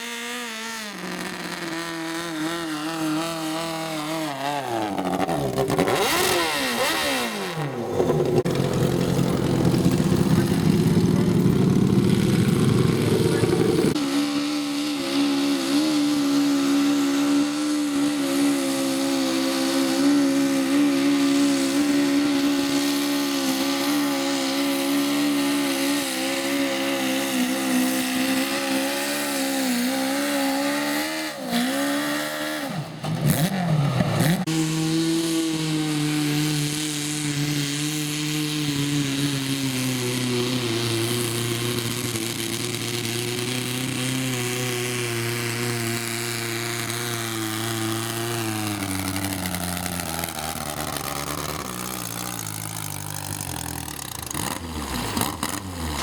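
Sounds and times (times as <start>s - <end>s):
garden tractor engine running: 0.2s - 14.1s, 37.6s - 56.0s.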